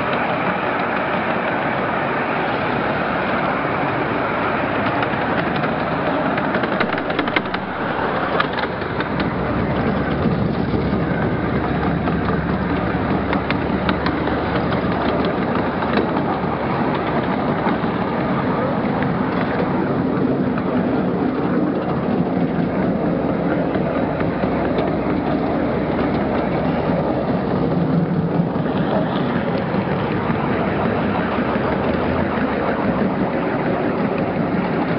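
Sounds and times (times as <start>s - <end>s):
train wheels rumbling on rails: 0.0s - 34.9s.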